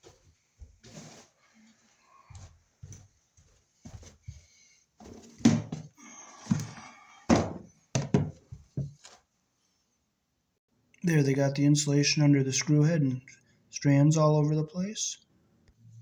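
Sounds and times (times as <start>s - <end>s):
thunks and knocks: 5.4s - 5.9s, 6.5s - 9.0s.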